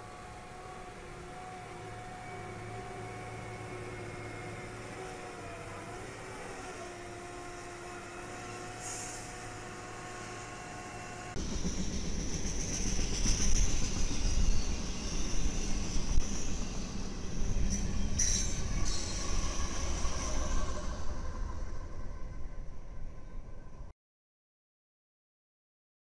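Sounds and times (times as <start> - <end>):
snow-clearing machine whining: 0.0 - 11.8
freight train wheels rumbling: 0.0 - 23.8.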